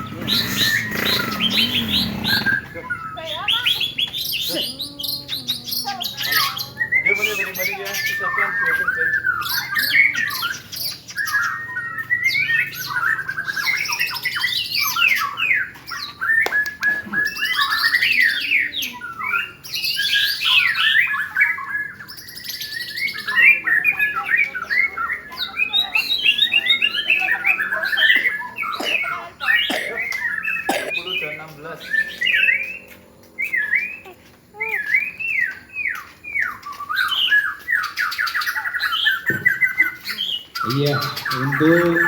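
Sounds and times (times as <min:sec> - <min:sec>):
chorus of birds singing: 0:00.0 - 0:42.0.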